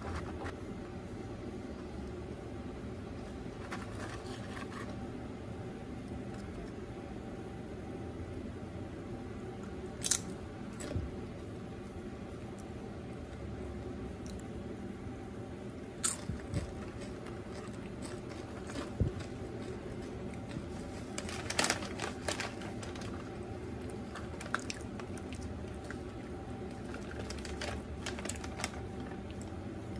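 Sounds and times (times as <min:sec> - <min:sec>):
chip crunching: 0:10.0 - 0:10.9, 0:16.0 - 0:29.9
snack bag crinkling: 0:16.0 - 0:29.6.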